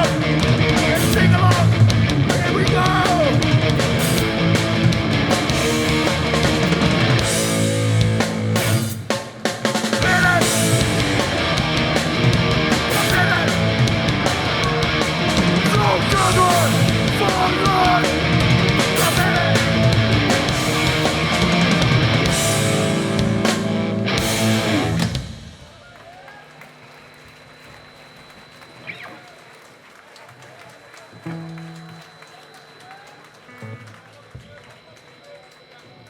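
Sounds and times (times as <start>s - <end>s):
punk band playing live: 0.0s - 25.7s.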